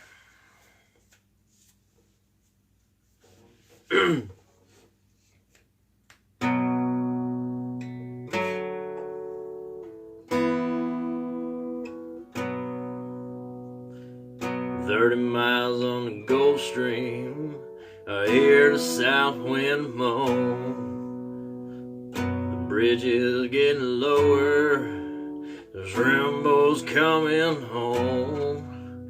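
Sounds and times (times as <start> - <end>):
acoustic guitar strumming chords: 6.4 - 29.0.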